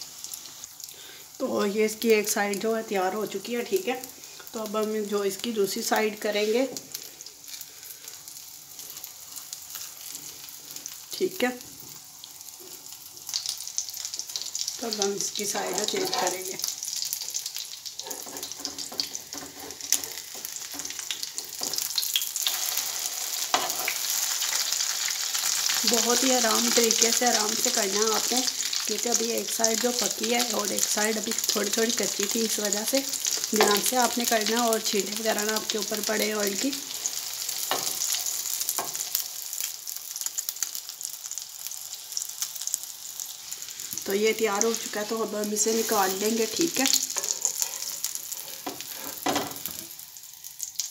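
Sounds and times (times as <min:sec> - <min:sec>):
chicken patty sizzling in oil: 0:00.0 - 0:50.9
spatula scraping and tapping pan: 0:15.6 - 0:16.6, 0:18.0 - 0:21.9, 0:23.5 - 0:24.0, 0:46.9 - 0:49.9.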